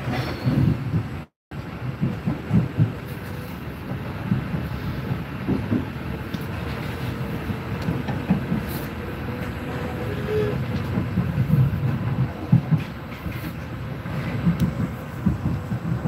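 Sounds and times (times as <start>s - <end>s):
train wheel knocks: 0.0s - 16.0s
train wheels rumbling on rails: 0.0s - 16.0s.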